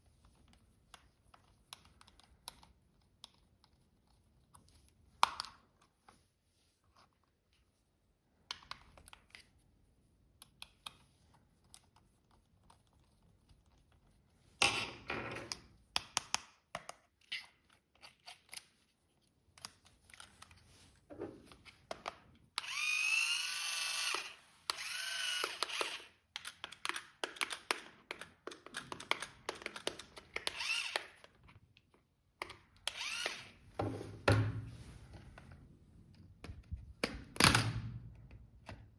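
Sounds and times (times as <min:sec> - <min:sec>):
small electric motor whirring: 0:22.6 - 0:26.2, 0:30.4 - 0:31.2, 0:32.8 - 0:33.6.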